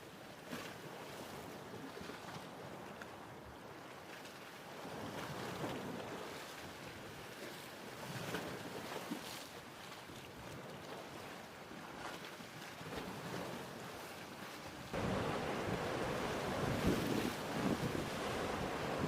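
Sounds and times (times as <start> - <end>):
ocean waves washing in: 12.8 - 19.0.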